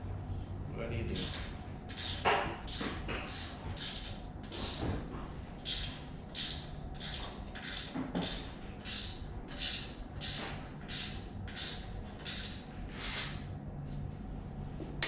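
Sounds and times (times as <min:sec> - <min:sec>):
ratchet wrench clicking: 0:01.2 - 0:04.6, 0:05.7 - 0:12.6.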